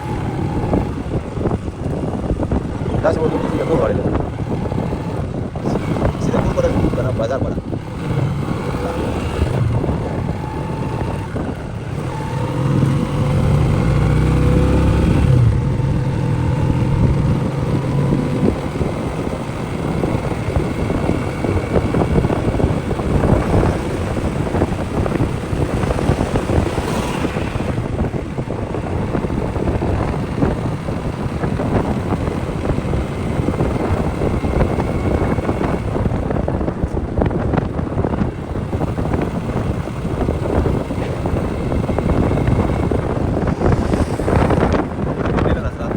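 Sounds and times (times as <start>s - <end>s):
motorcycle engine running: 0.0s - 45.9s
wind buffeting microphone: 0.0s - 45.9s.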